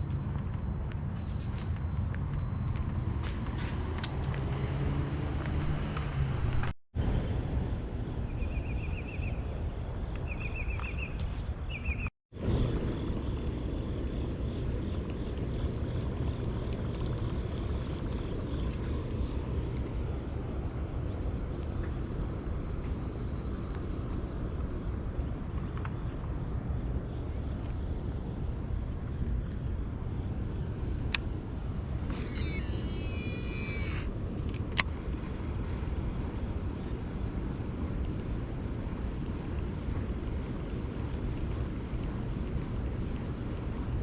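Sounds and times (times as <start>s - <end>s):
low background rumble: 11.7s - 44.0s
songbird trilling: 32.1s - 34.1s.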